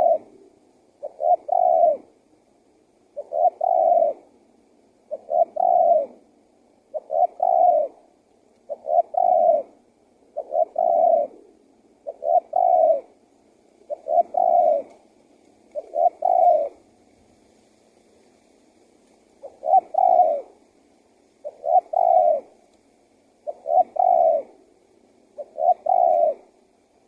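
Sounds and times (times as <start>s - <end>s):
dove cooing: 0.0s - 2.2s, 3.1s - 4.4s, 5.0s - 13.2s, 13.8s - 17.0s, 19.3s - 20.7s, 21.4s - 22.7s, 23.4s - 26.8s.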